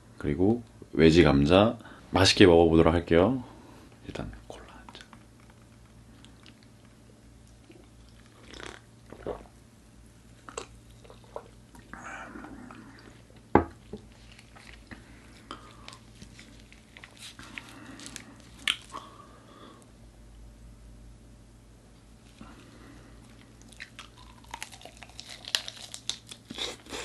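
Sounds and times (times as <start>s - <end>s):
mouth noises eating: 7.6s - 9.6s, 23.4s - 27.0s.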